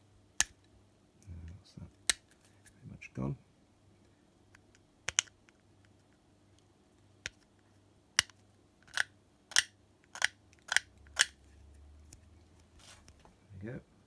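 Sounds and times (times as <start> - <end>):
sharp plastic clicks: 8.2 - 11.4.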